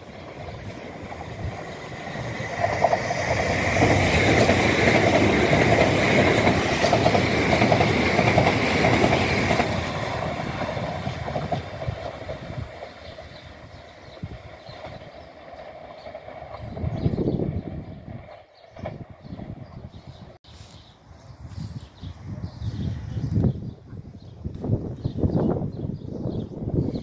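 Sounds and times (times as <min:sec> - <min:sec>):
train wheels clattering over rail joints: 0:00.4 - 0:16.8.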